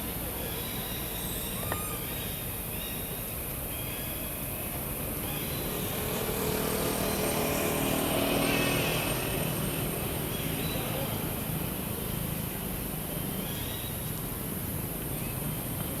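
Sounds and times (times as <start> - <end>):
motor vehicle passing: 5.6 - 11.5.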